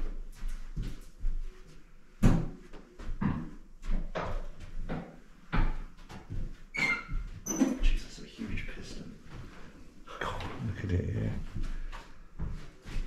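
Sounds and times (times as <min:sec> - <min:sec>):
irregular knocks and thumps: 0:02.2 - 0:08.0.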